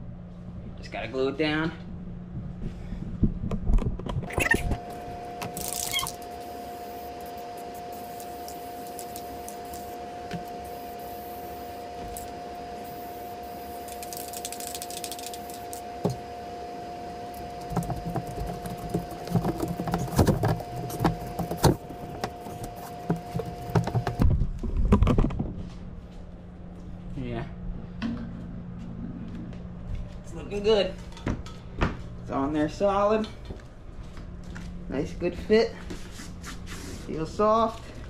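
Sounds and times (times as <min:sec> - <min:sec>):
steady hum: 0:00.0 - 0:38.0
knocks taps and rustling: 0:17.6 - 0:24.2.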